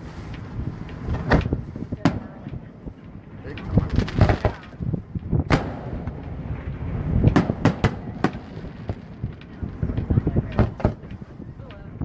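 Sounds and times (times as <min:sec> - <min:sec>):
low rumble: 0:00.0 - 0:12.0
fireworks bangs: 0:01.1 - 0:02.6, 0:03.6 - 0:11.2.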